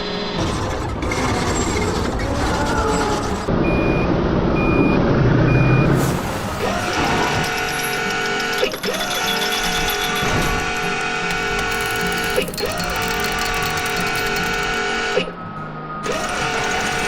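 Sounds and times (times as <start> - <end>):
reversing alarm beeps: 3.5 - 6.0.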